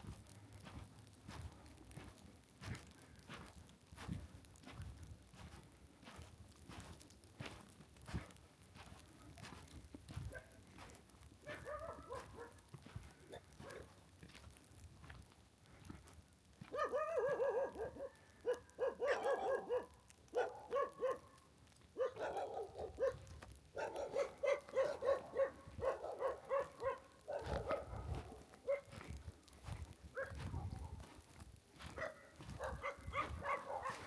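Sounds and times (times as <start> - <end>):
dog barking: 10.3 - 10.6, 11.4 - 12.7, 13.3 - 14.0, 16.7 - 29.2, 30.1 - 31.2, 31.9 - 34.0.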